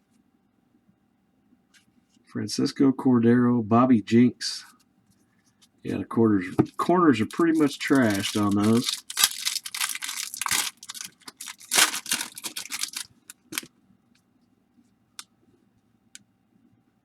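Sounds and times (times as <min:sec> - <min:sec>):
wrapper being torn and crinkled: 0:07.2 - 0:13.7.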